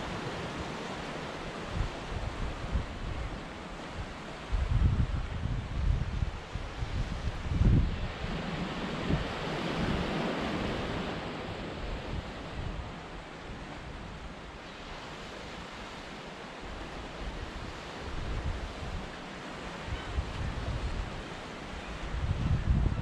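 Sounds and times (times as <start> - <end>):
sea waves washing in: 0.0 - 23.0
wind buffeting microphone: 1.6 - 13.0, 22.0 - 23.0.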